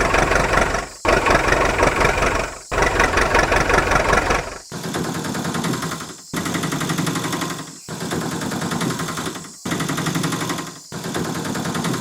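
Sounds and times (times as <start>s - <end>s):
small motor rattling: 0.0s - 4.6s.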